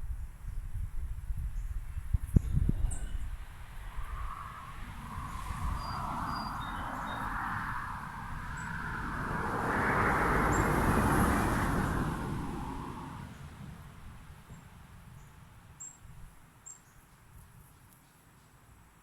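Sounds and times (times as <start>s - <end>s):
vehicle passing by: 3.9s - 13.8s.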